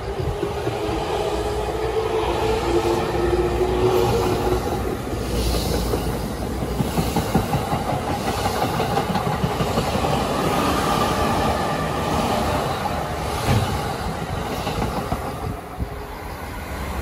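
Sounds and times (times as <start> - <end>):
train rumbling past: 0.0 - 17.0
wheels clacking over rail joints: 4.0 - 16.1.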